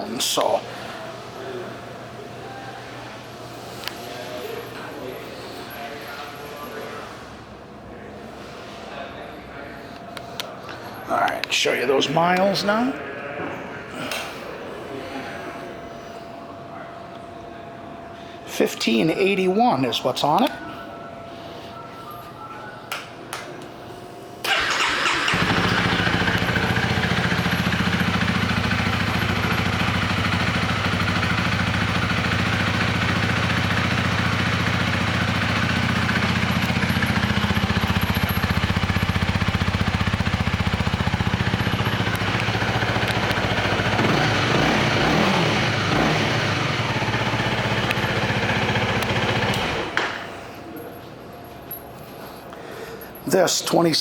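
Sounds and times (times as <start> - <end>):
motorcycle engine starting and idling: 24.4 - 50.3
motorcycle engine revving: 24.5 - 50.0.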